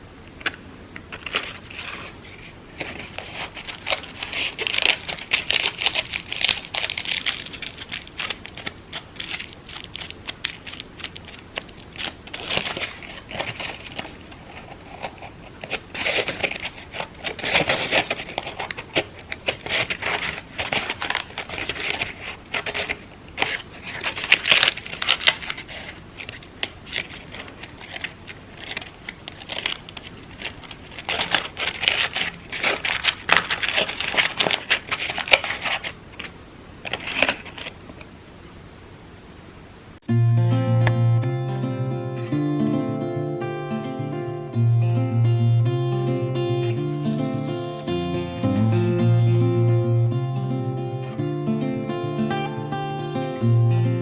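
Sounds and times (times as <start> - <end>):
crepe paper crinkling: 0.4 - 37.8.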